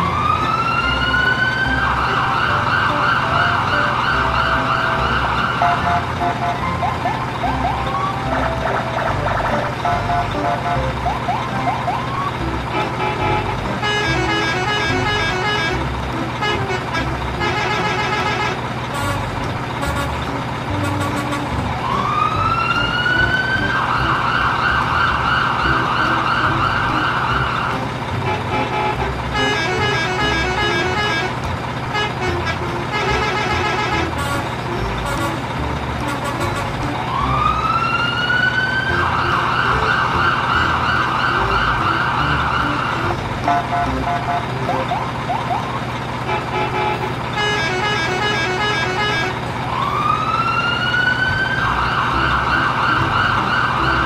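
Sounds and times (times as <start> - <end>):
electronic siren wailing: 0.0 - 12.9, 21.8 - 27.9, 36.9 - 45.9, 47.6 - 54.0
beeping electronic tune: 2.1 - 13.4, 41.3 - 45.8.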